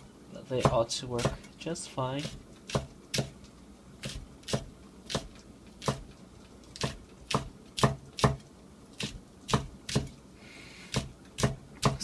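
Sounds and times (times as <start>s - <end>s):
knife chopping on cutting board: 0.6s - 1.4s, 2.2s - 3.4s, 4.0s - 6.1s, 6.8s - 8.4s, 9.0s - 10.1s, 10.9s - 12.0s.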